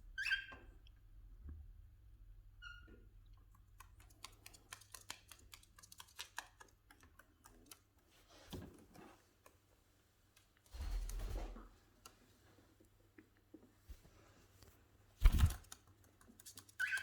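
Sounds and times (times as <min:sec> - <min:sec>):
beaks pecking clicks: 0:03.8 - 0:07.8
soft rustle: 0:08.0 - 0:15.6.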